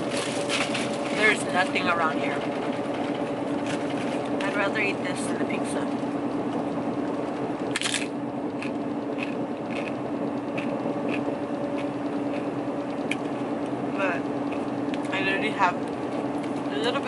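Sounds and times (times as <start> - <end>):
crunching crisp food: 0.0 - 1.1, 7.7 - 13.3
low hum: 0.0 - 17.0.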